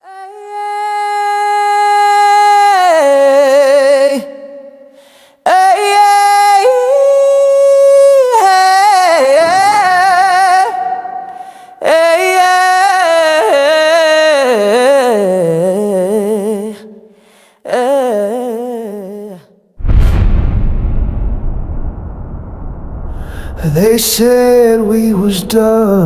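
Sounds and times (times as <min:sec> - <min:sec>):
wordless singing voice: 0:00.0 - 0:19.7, 0:23.2 - 0:26.0
breaths: 0:04.8 - 0:05.5, 0:11.2 - 0:11.8, 0:17.0 - 0:17.7, 0:23.1 - 0:23.6.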